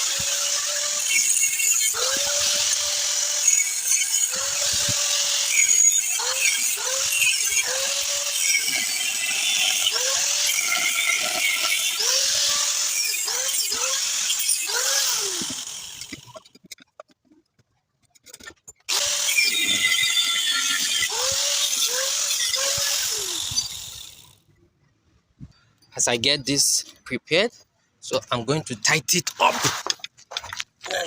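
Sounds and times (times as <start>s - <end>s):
angle grinder cutting steel pipe: 0.0s - 16.6s, 18.9s - 24.4s.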